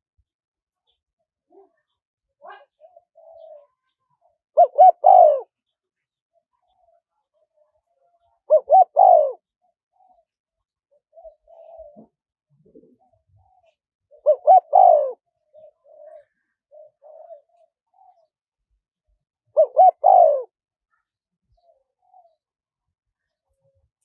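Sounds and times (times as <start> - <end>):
dove cooing: 1.5 - 5.6, 8.5 - 10.3, 11.0 - 18.3, 19.5 - 20.6, 21.5 - 22.4.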